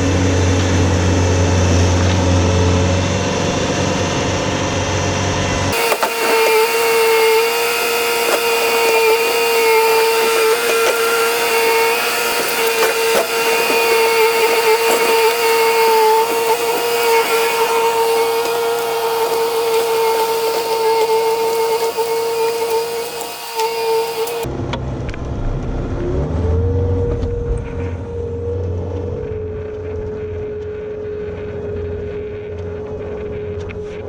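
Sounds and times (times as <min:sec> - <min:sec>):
motor whining: 0:05.7 - 0:24.5.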